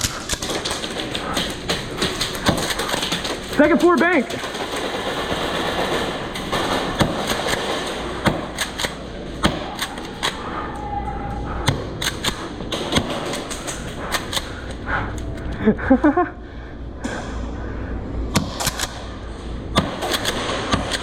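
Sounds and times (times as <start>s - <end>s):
airsoft gunfire: 0.0s - 10.4s, 11.6s - 14.7s, 18.3s - 19.1s, 19.7s - 21.0s.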